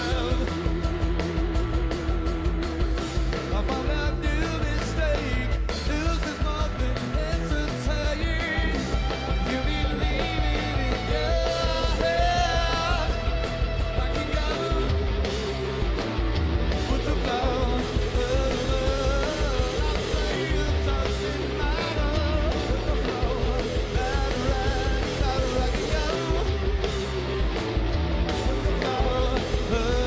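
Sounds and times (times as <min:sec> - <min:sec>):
person singing: 0:00.0 - 0:01.0, 0:03.5 - 0:13.4, 0:28.3 - 0:30.0
live rock band: 0:00.0 - 0:30.0.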